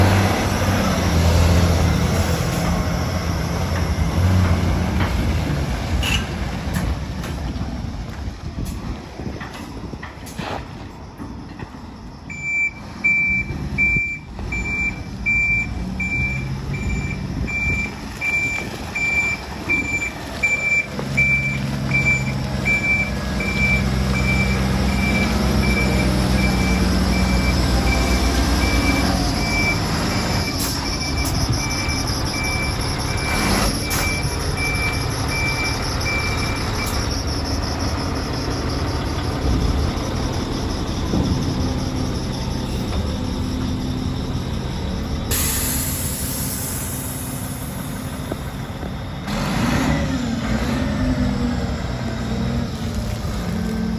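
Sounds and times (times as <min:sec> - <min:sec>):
diesel engine running: 0:00.0 - 0:53.9
back-up alarm beeping: 0:12.2 - 0:47.8.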